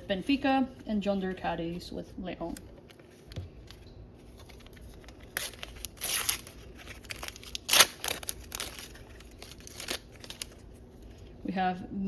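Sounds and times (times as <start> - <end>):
sticker packet torn open: 4.3 - 10.7.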